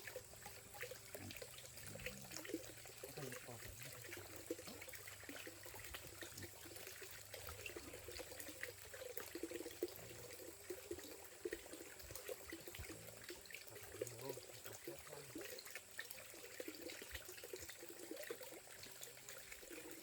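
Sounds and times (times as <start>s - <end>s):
water trickling and splashing: 0.0s - 20.0s.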